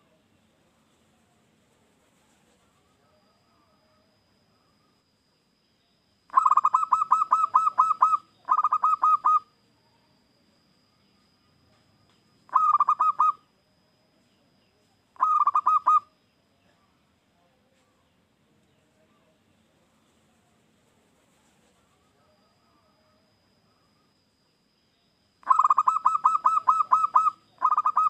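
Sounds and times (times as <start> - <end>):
dove cooing: 6.3 - 9.5, 12.5 - 13.4, 15.2 - 16.1, 25.4 - 28.0.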